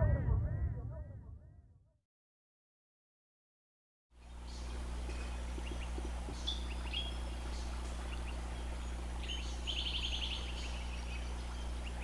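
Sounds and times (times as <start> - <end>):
bird trill: 4.2 - 12.0
small birds chirping: 4.2 - 12.0
steady low hum: 4.2 - 12.0.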